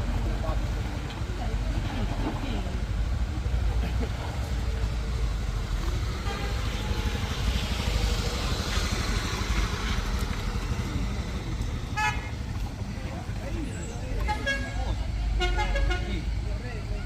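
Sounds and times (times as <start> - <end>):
vehicle engines rumbling: 0.0 - 17.0
vehicle horn: 6.2 - 7.3, 11.9 - 12.4, 14.2 - 16.3.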